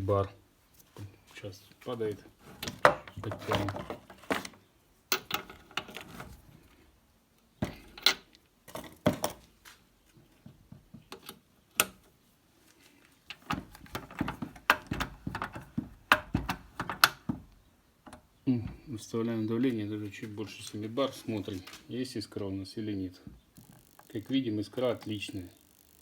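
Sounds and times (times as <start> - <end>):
metal clicks and knocks: 5.1 - 6.0, 13.3 - 18.2.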